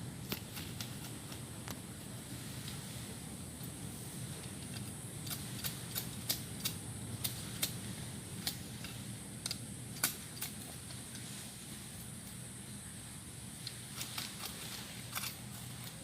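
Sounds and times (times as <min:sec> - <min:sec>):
hand tool digging soil: 0:00.2 - 0:01.5, 0:13.7 - 0:16.0.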